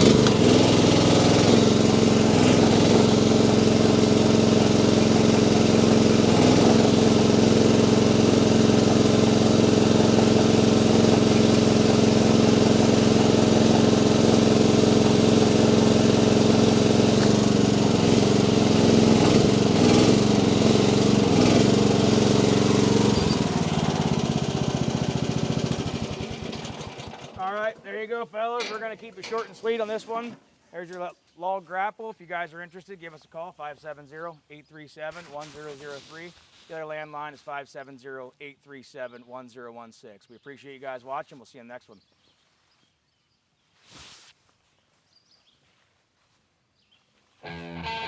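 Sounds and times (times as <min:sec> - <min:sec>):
excavator engine running: 0:00.0 - 0:27.4.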